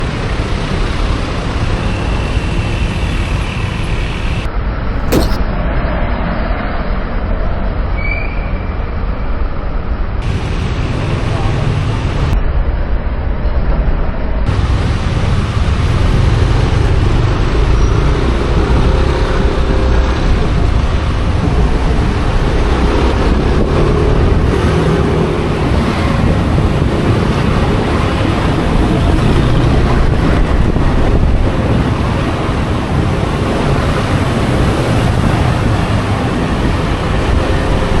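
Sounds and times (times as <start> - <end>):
road traffic rumble: 10.2 - 12.4, 14.5 - 38.0
wind buffeting microphone: 18.6 - 38.0.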